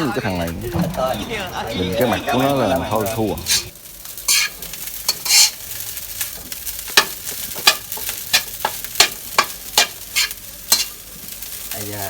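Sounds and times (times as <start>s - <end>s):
rice sizzling in a pan: 0.0s - 12.0s
spatula scraping a pan: 3.0s - 11.7s.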